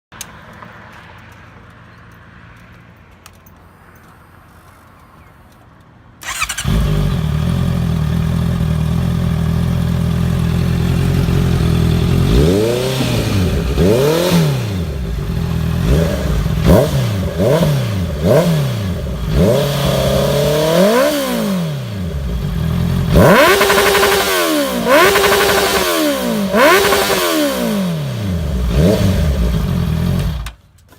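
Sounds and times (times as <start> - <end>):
motorcycle revving in blips: 6.2 - 30.6
motorcycle starting and idling: 6.2 - 30.8.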